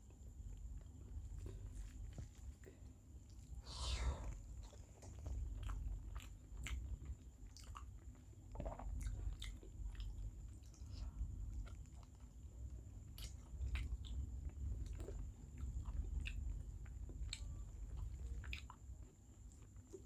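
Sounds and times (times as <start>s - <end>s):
person chewing: 3.3s - 12.4s, 13.1s - 20.0s.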